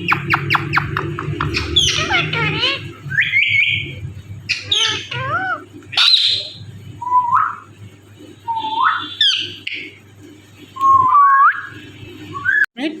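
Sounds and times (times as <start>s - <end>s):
parrot squawks and whistles: 0.1s - 3.9s.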